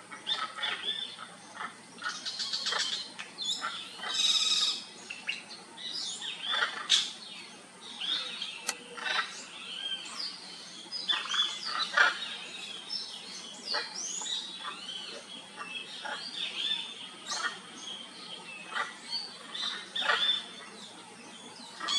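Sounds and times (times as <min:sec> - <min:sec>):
birds chirping and calling: 0:00.0 - 0:21.9.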